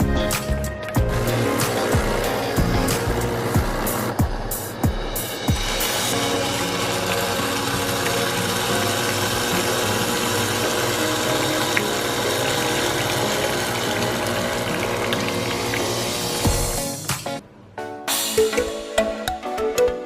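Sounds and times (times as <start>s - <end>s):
pump cutting off with a thump: 0.9s - 4.4s, 5.5s - 17.2s
espresso machine pump buzzing: 1.0s - 4.4s, 5.4s - 17.1s.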